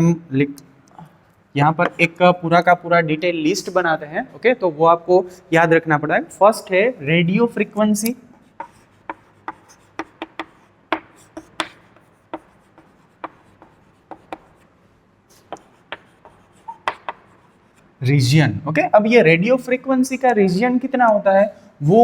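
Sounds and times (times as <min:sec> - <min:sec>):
pen tapping and scratching paper: 0:01.8 - 0:02.2, 0:08.4 - 0:14.7, 0:15.3 - 0:17.9.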